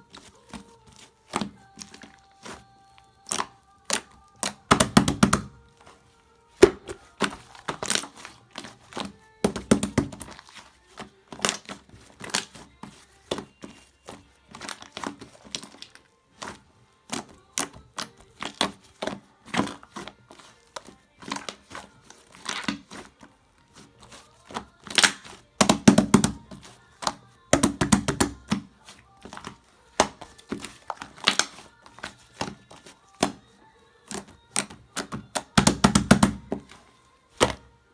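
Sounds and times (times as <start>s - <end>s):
slime crackling and popping: 6.5s - 10.6s, 24.6s - 28.6s, 29.3s - 33.4s.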